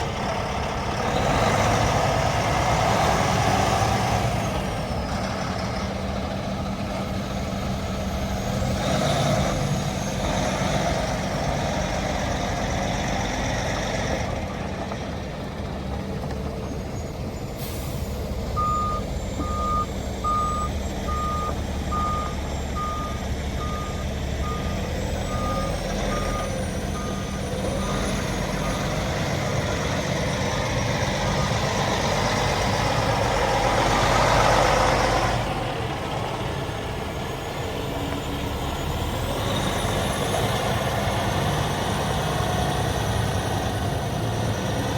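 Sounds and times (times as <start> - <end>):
truck diesel engine running: 0.0 - 44.9
reversing beeper: 17.0 - 32.1.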